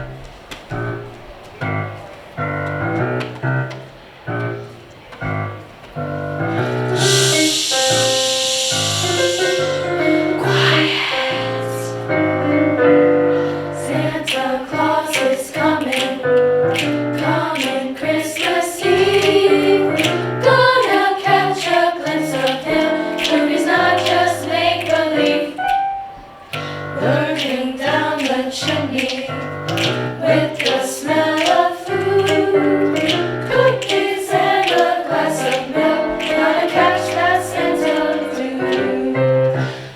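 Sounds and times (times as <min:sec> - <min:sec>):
piano accompaniment: 0:00.0 - 0:39.9
high shimmering hiss: 0:06.9 - 0:14.1
choir singing: 0:06.9 - 0:39.9.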